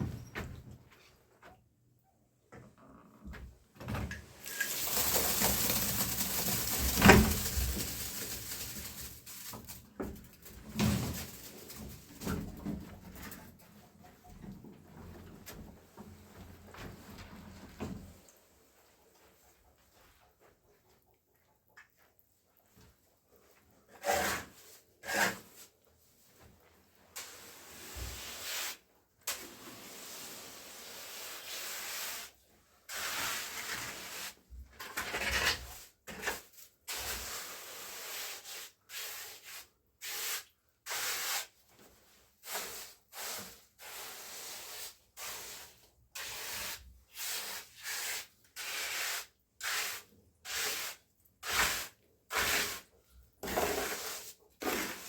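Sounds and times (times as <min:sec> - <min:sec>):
hand tool scraping rough surface: 0:04.4 - 0:12.1, 0:23.9 - 0:25.7, 0:32.9 - 0:40.2, 0:42.4 - 0:55.0.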